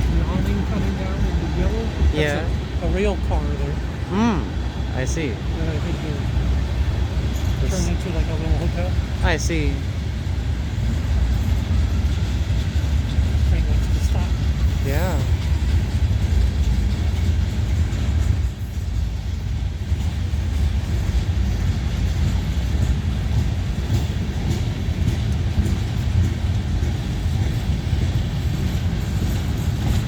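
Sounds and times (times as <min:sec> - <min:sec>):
freight train rumbling on rails: 0:00.0 - 0:30.0.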